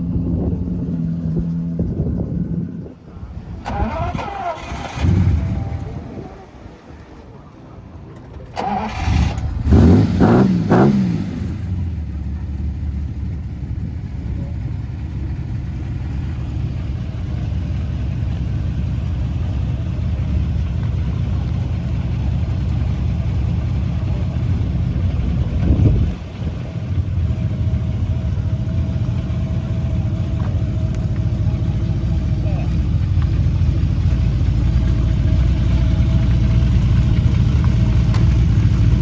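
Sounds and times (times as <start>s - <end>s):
engine revving: 0.0s - 7.2s, 8.4s - 12.7s
car engine starting: 0.0s - 39.0s
engine idling: 0.0s - 39.0s.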